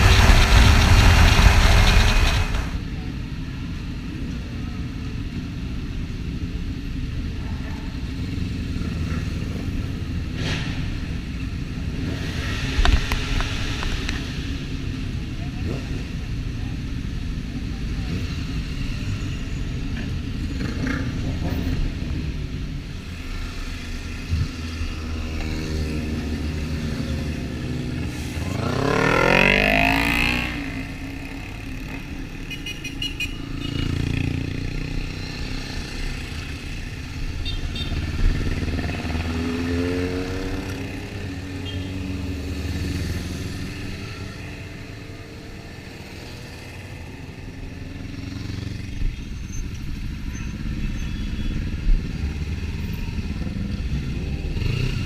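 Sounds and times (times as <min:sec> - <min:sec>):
engine revving up: 0:28.0 - 0:30.9.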